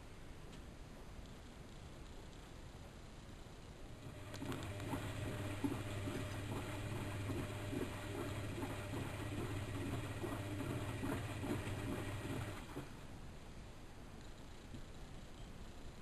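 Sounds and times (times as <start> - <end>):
washing machine motor hum: 3.9 - 13.2
laundry and water tumbling: 4.0 - 13.0.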